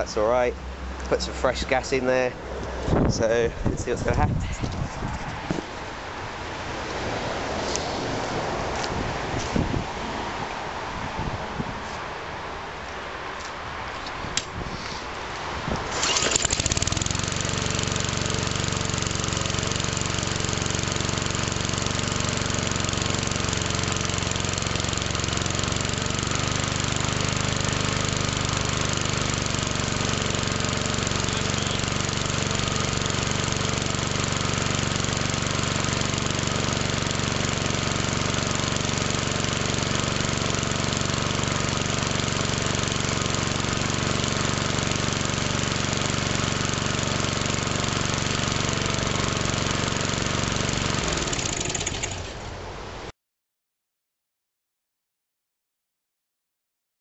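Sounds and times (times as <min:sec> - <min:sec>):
lawn mower engine running: 0:15.8 - 0:52.6.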